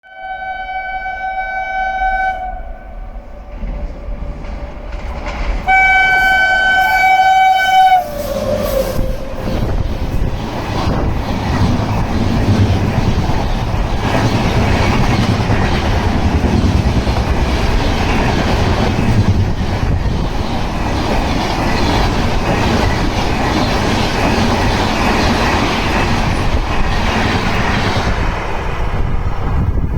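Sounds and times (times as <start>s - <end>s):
train horn blasts: 0.0s - 3.4s, 5.7s - 9.8s
train wheels rumbling on rails: 2.4s - 29.9s.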